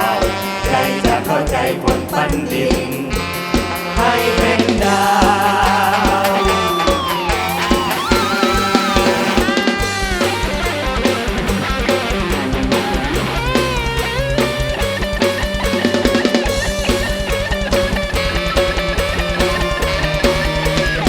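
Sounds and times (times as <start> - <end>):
bass guitar: 0.0 - 21.0
drum kit: 0.0 - 21.0
fast bass drum beats: 4.2 - 21.0
electric guitar lead line: 5.1 - 21.0.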